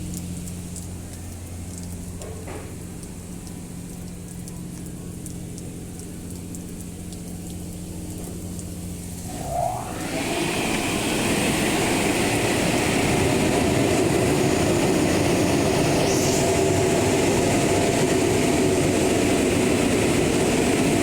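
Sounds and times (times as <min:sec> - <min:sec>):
low mechanical hum: 0:00.0 - 0:21.0
short rising whine: 0:09.3 - 0:19.0.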